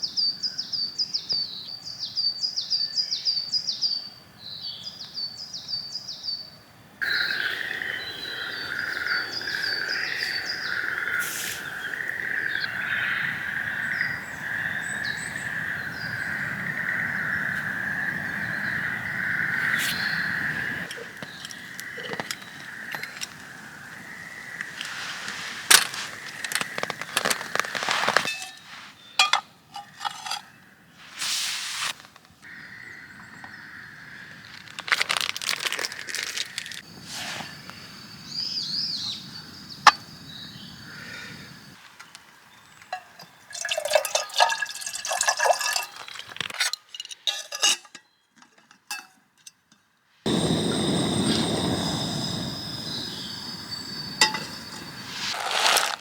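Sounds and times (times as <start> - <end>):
tableware clinking and knocking: 28.2 - 30.4
liquid pouring: 43.5 - 46.5, 55.3 - 56.0.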